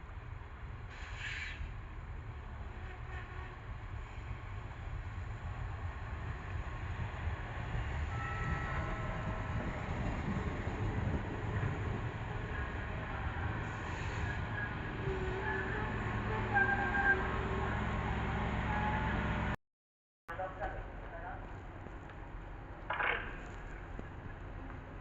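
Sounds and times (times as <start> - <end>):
train rumbling: 0.4 - 19.6
brief hiss: 0.9 - 1.7.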